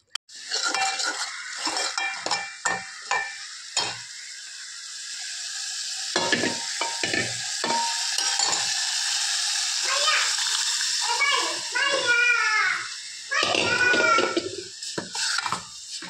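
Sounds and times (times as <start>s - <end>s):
spoon scraping a metal pot: 0.3s - 4.1s, 6.2s - 8.8s, 13.4s - 16.0s
paste sizzling in hot oil: 0.3s - 16.0s.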